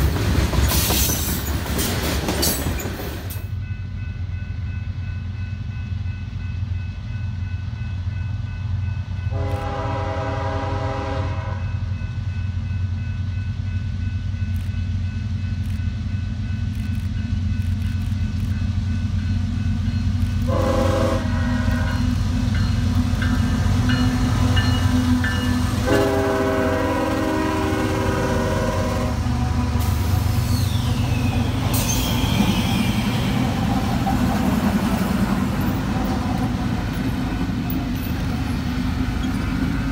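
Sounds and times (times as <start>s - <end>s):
train rumbling: 0.0s - 39.9s
locomotive multi-chime air horn: 9.2s - 11.9s, 19.9s - 33.3s
high falling squeal: 29.8s - 33.5s.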